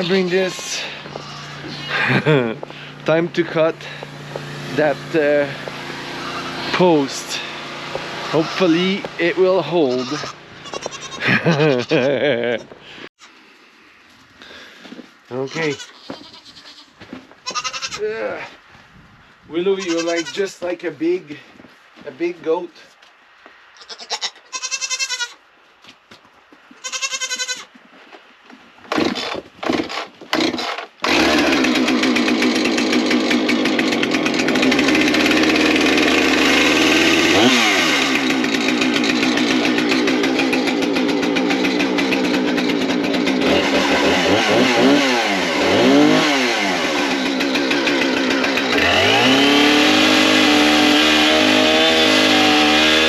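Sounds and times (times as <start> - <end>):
goat bleating: 0.0 - 2.1, 6.2 - 6.8, 8.2 - 12.8, 15.3 - 18.5, 19.6 - 20.6, 23.7 - 25.4, 26.7 - 27.7
chainsaw pull-start tugs: 0.0 - 12.1, 28.9 - 53.0
chainsaw running and revving: 0.0 - 12.6, 28.9 - 53.0.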